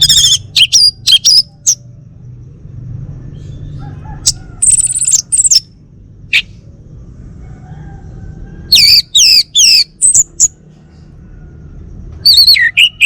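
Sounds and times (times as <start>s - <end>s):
thrush singing whistled notes: 0.0s - 1.8s, 3.2s - 6.6s, 8.7s - 10.6s, 12.1s - 13.0s.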